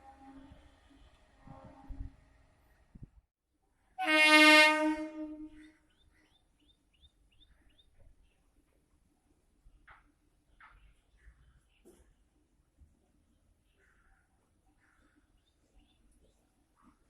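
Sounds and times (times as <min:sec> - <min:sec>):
train horn blast: 0:00.0 - 0:02.3, 0:04.0 - 0:05.6.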